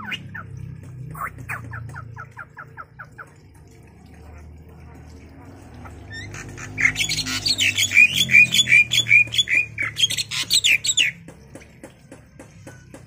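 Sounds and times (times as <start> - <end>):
bird squawking: 0.0 - 0.5, 1.1 - 3.3, 6.1 - 11.2.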